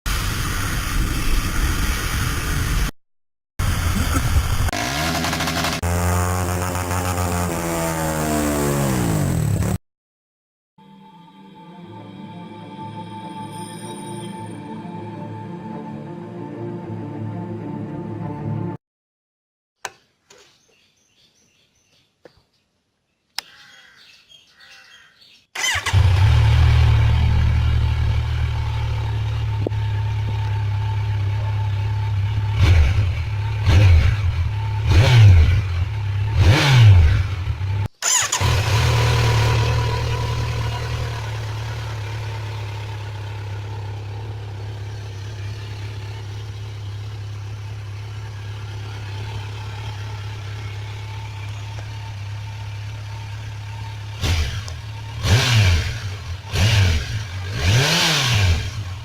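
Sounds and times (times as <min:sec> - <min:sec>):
motorcycle engine starting and revving: 0:03.6 - 0:09.8, 0:25.6 - 0:59.0.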